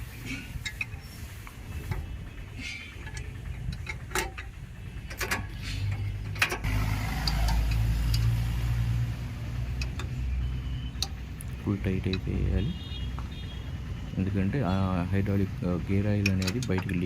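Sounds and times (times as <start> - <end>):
steady low rumble: 0.0 - 17.0
metallic clicks of spanner: 3.0 - 8.3, 16.0 - 17.0.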